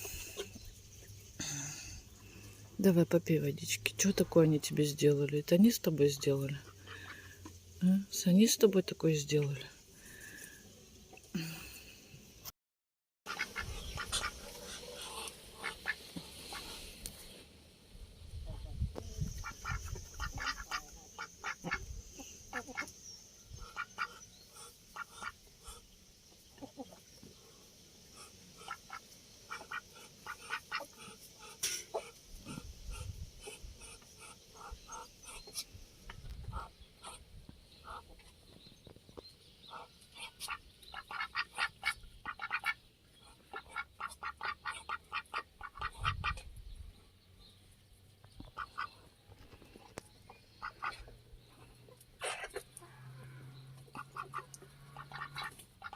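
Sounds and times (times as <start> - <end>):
ducks quacking: 13.3 - 16.9, 19.3 - 22.9, 23.6 - 25.9, 28.2 - 35.6, 39.7 - 46.5, 48.4 - 49.0, 50.6 - 51.1, 52.2 - 55.9.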